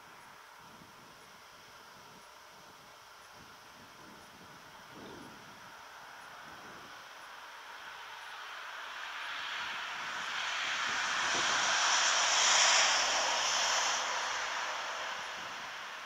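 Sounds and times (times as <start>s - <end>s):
vehicle passing by: 8.4s - 16.0s.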